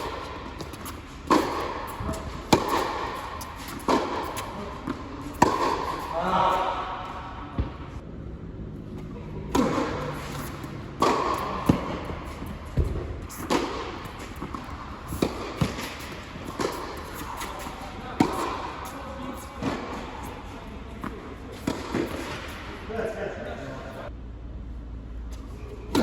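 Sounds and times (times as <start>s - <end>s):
ball bouncing on court: 0.0s - 6.7s, 7.5s - 7.8s, 9.5s - 17.6s
tennis ball hit by racquets: 0.0s - 7.8s, 9.5s - 22.7s.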